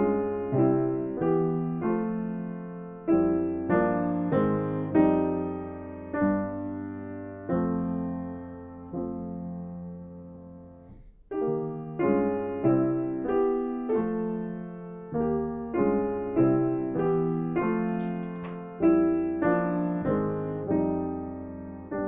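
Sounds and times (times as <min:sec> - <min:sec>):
solo piano chords: 0:00.0 - 0:22.0.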